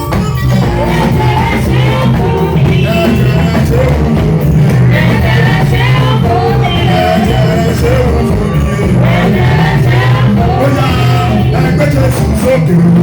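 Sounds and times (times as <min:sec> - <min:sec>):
band playing praise music: 0:00.0 - 0:13.0
person singing: 0:00.0 - 0:13.0.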